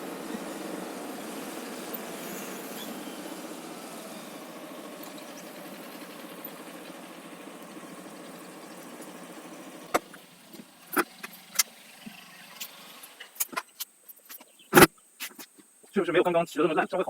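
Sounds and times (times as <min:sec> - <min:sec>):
motorcycle engine running: 0:00.0 - 0:13.4
sharp clicks and knocks: 0:09.9 - 0:11.7.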